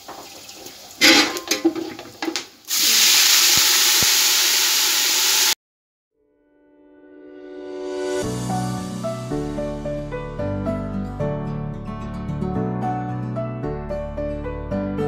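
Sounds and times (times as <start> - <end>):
knocks and clatters: 1.0 - 2.5
paste sizzling in hot oil: 2.6 - 5.6.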